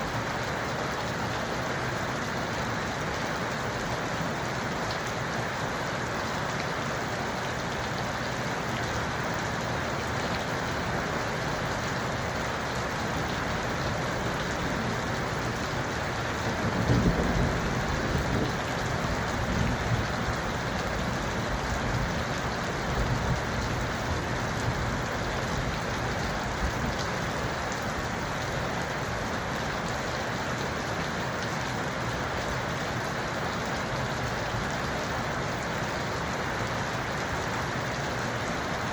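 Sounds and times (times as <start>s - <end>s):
steady rain falling: 0.0s - 38.9s
deep roll of thunder: 16.6s - 18.5s.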